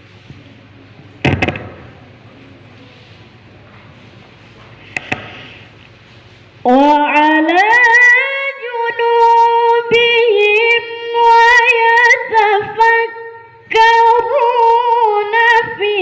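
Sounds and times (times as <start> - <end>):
child reciting melodically: 6.6 - 16.0.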